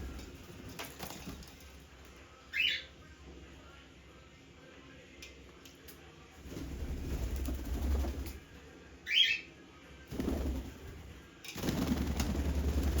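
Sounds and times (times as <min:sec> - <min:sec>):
parrot wings flapping: 0:06.4 - 0:08.4, 0:10.1 - 0:13.0.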